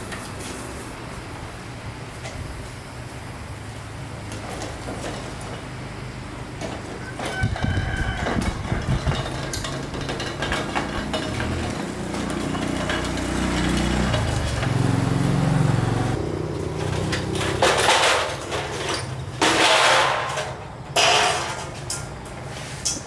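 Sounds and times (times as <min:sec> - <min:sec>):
small motorbike engine running: 0:07.5 - 0:17.7.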